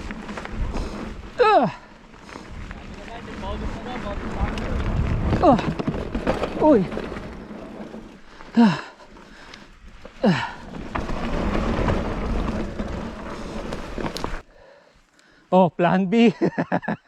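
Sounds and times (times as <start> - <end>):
wind rumble: 0.0 - 14.6
bike tyres rolling on dirt: 0.0 - 15.4
person exclaiming: 1.4 - 1.9.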